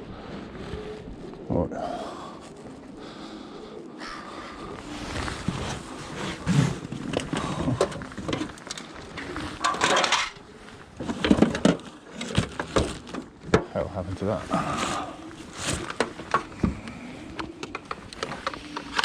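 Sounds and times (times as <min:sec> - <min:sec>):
scrap metal clattering: 0:09.6 - 0:10.4.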